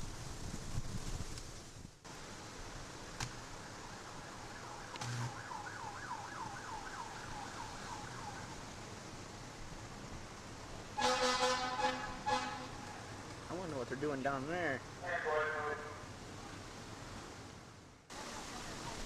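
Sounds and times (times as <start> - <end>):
siren in yelp mode: 3.6 - 8.6.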